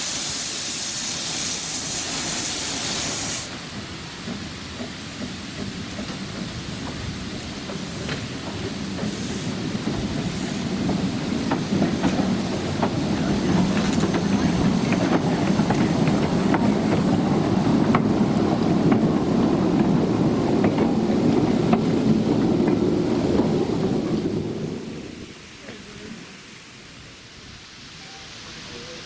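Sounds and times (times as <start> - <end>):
train rumbling: 0.0 - 26.4
wheels clicking over rails: 3.0 - 24.8.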